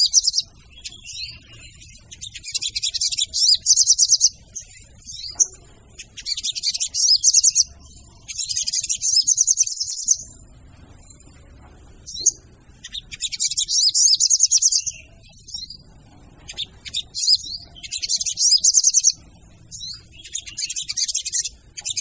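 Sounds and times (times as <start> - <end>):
birds calling in rattling trills: 0.0 - 22.0.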